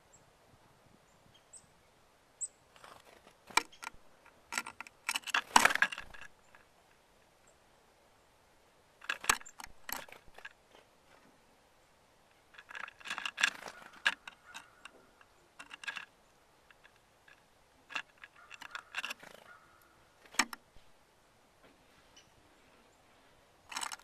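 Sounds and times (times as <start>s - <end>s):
birds pecking at a feeder: 2.7s - 7.1s, 9.0s - 11.4s, 12.3s - 21.0s, 23.6s - 24.0s.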